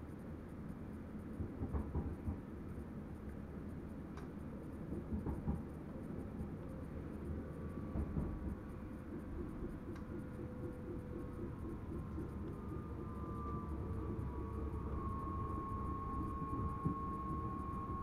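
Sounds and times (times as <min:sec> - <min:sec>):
faint steady tone: 0:00.0 - 0:18.0
train rumbling on track: 0:00.0 - 0:18.0.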